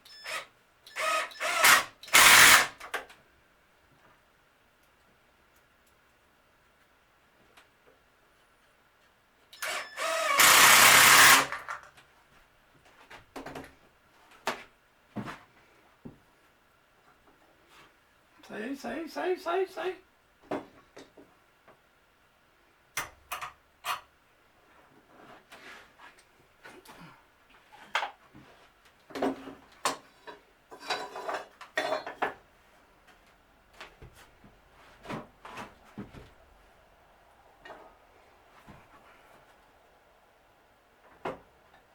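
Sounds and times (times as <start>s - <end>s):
power tool running: 0.3s - 2.8s, 9.6s - 11.7s
tools knocking and clattering: 29.1s - 32.4s.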